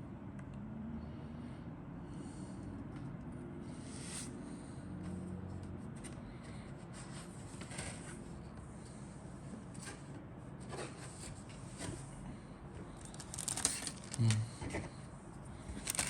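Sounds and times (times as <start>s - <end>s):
plastic parts rustling: 13.0s - 14.4s, 15.7s - 16.0s.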